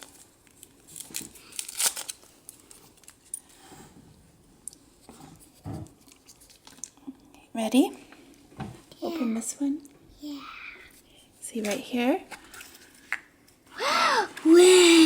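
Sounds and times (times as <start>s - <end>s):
foil wrapper crinkling: 0.0s - 3.3s.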